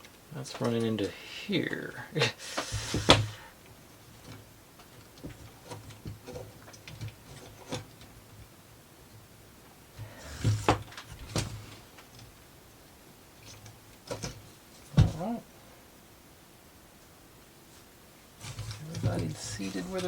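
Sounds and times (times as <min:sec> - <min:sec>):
wooden parts clicking and tapping: 0:00.0 - 0:01.1, 0:02.5 - 0:08.3, 0:13.4 - 0:15.3, 0:18.4 - 0:20.0.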